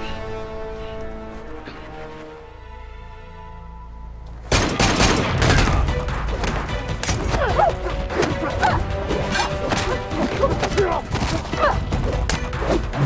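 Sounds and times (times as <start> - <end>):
dramatic music: 0.0 - 13.0
rapid gunfire: 4.5 - 7.2.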